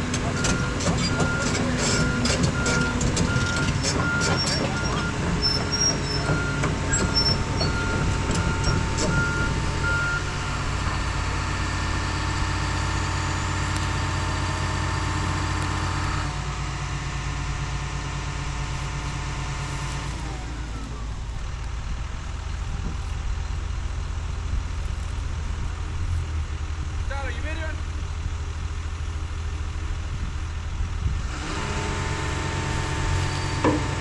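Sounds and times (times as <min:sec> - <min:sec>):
heavy diesel equipment running: 0:00.0 - 0:34.0
backup alarm beeping: 0:00.3 - 0:10.5.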